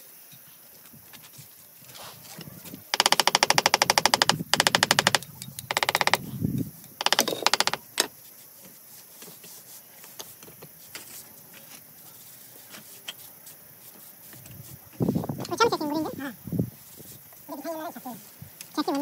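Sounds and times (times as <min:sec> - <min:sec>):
low background noise: 0:00.0 - 0:19.0
rapid mechanical clatter: 0:03.0 - 0:06.2.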